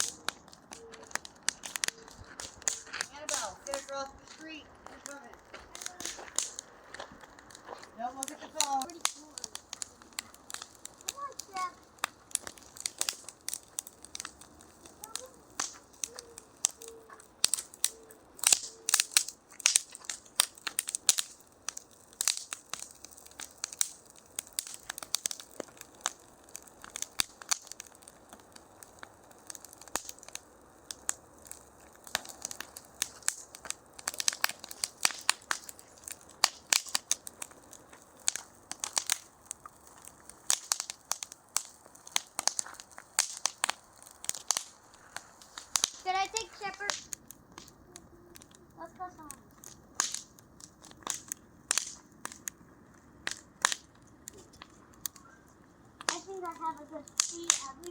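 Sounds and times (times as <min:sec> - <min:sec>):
fire crackling and popping: 0:00.0 - 0:57.9.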